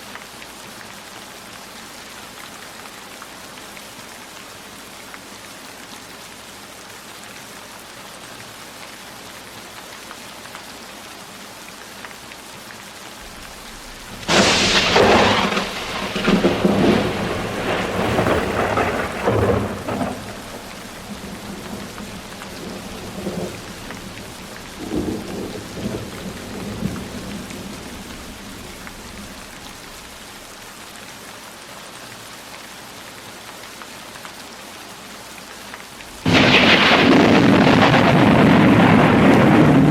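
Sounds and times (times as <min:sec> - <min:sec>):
heavy rain: 0:00.0 - 0:39.9
thunder rumbling: 0:13.2 - 0:30.6, 0:36.1 - 0:39.9.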